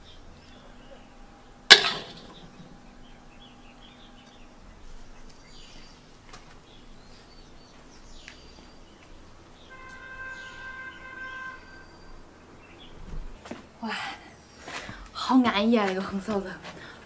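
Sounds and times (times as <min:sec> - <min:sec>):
steady pitched bird call: 0:09.6 - 0:13.0.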